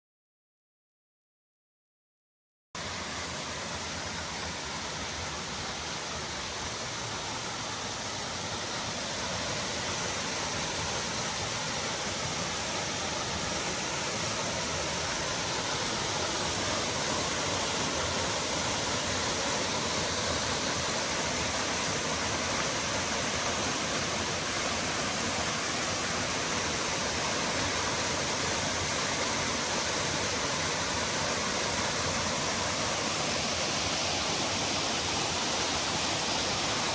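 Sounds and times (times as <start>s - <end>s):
waterfall rushing: 2.8s - 36.9s.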